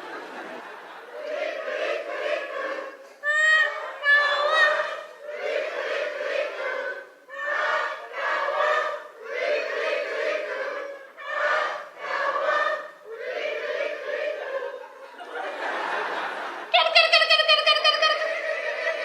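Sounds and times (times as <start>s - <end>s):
audience calling out together: 1.2s - 14.8s.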